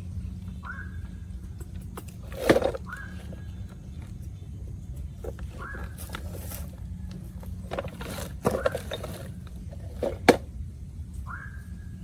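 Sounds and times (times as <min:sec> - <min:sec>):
steady low hum: 0:00.0 - 0:12.0
scraping and handling noises: 0:01.4 - 0:10.6.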